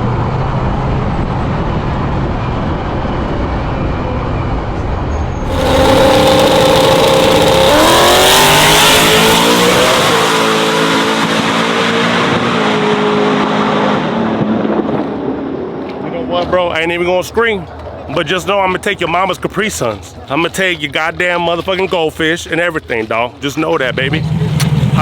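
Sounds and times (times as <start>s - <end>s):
pickup truck engine accelerating: 5.5s - 14.0s.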